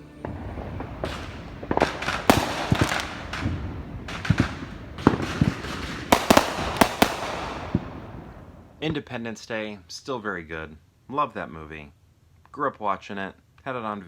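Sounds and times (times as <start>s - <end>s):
fireworks bangs and crackling pops: 0.2s - 9.0s.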